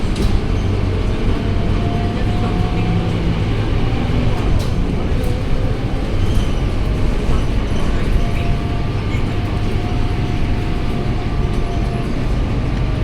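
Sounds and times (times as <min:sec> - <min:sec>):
bus diesel engine droning: 0:00.0 - 0:13.0.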